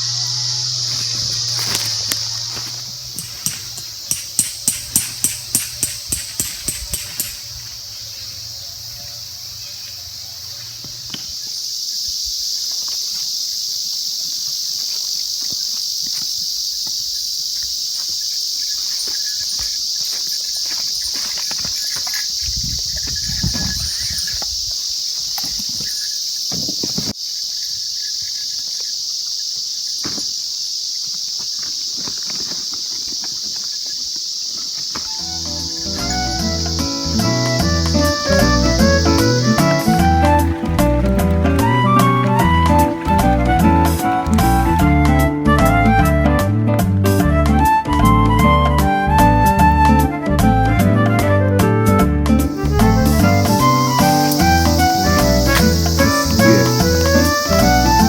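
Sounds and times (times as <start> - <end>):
insects chirping: 0.0 - 58.0
regular ticks: 3.1 - 7.6.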